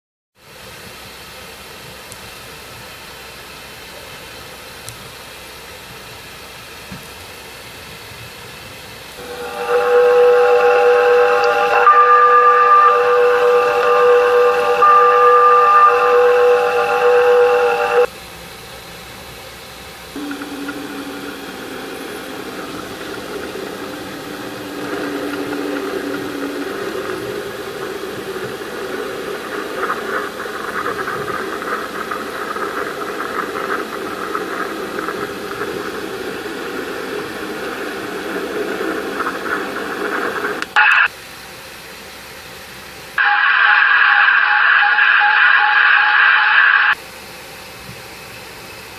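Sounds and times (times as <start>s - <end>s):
static-like hiss and rumble: 0.5s - 41.4s
loud noise burst: 9.2s - 18.1s, 20.1s - 41.1s, 43.2s - 47.0s
low steady tone: 9.2s - 18.1s, 20.2s - 40.6s.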